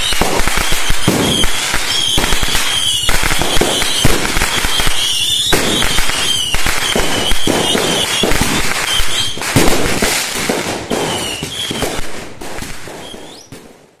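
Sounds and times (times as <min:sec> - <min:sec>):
fireworks crackling bangs: 0:00.0 - 0:14.0
high wavering whistle: 0:04.7 - 0:09.3.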